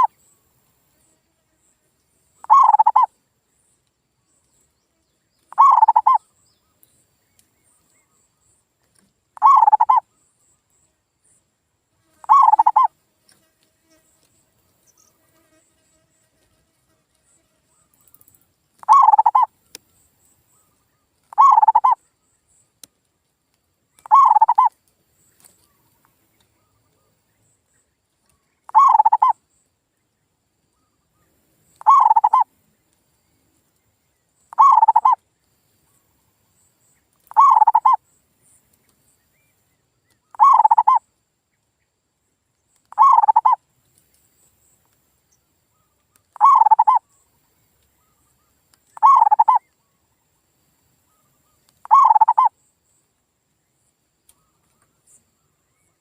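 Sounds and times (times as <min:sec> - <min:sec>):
dove cooing: 0:02.4 - 0:03.1, 0:05.5 - 0:06.2, 0:09.4 - 0:10.0, 0:12.2 - 0:12.9, 0:18.8 - 0:19.5, 0:21.3 - 0:22.0, 0:24.0 - 0:24.7, 0:28.7 - 0:29.4, 0:31.8 - 0:32.5, 0:34.5 - 0:35.2, 0:37.3 - 0:38.0, 0:40.4 - 0:41.0, 0:42.9 - 0:43.6, 0:46.4 - 0:47.0, 0:49.0 - 0:49.6, 0:51.8 - 0:52.5.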